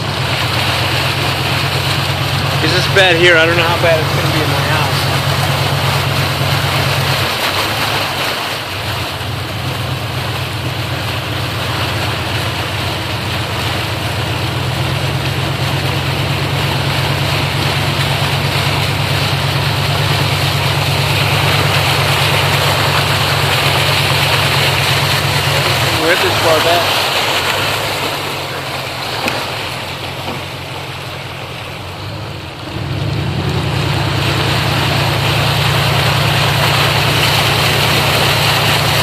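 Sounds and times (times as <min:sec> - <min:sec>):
floodwater washing: 0:00.0 - 0:39.0
vehicle engine running: 0:00.0 - 0:39.0.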